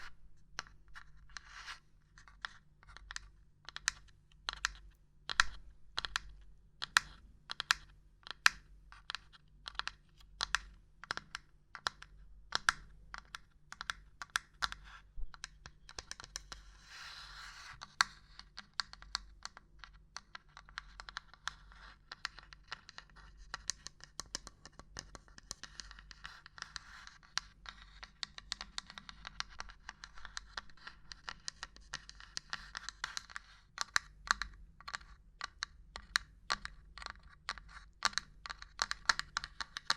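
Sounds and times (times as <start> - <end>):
tapping on small objects: 2.3 - 16.5, 27.4 - 39.9.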